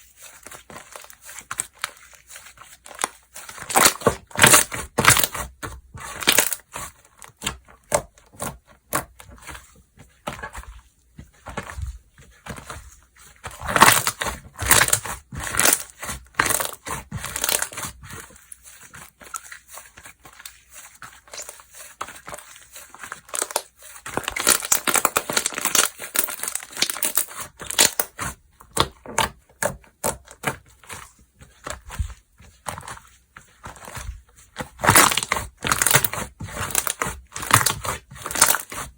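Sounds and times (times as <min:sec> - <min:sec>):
slime squeezed crackling and popping: 0:03.6 - 0:05.4, 0:13.6 - 0:17.8, 0:23.2 - 0:30.5, 0:34.7 - 0:38.8.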